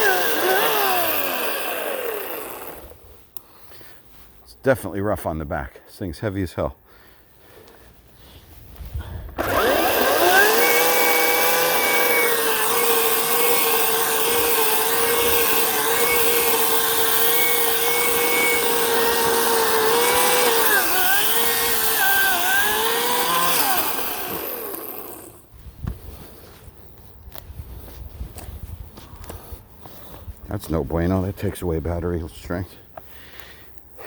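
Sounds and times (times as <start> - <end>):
electric chainsaw cutting wood: 0.0 - 3.0, 9.4 - 25.4.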